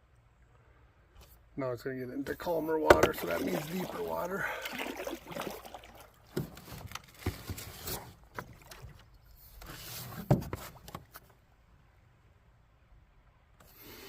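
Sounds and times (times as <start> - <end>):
paddles knocking against canoe: 2.7 - 9.2
paddle strokes splashing water: 2.8 - 11.2.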